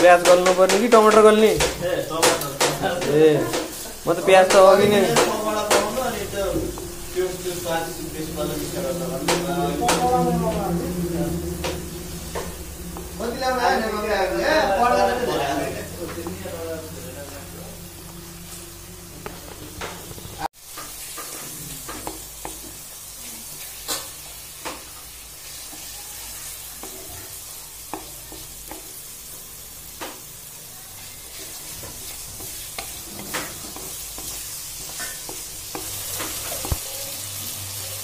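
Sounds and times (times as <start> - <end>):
vegetables sizzling: 0.0 - 38.0
spatula scraping and clicking pan: 31.6 - 36.8.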